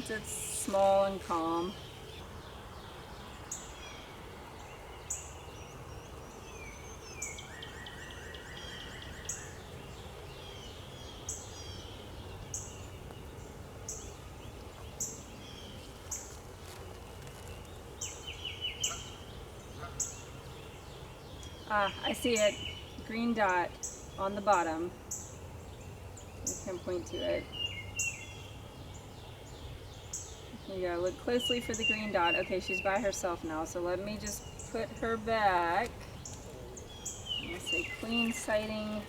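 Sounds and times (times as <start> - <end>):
birds chirping: 0.0 - 39.0
honeybees humming: 0.0 - 39.0.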